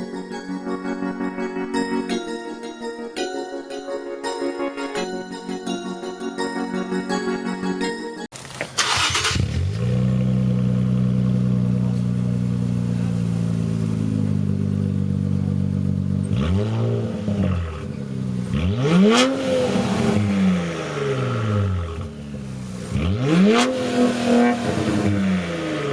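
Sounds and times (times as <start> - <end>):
car engine starting and revving: 8.4 - 25.9.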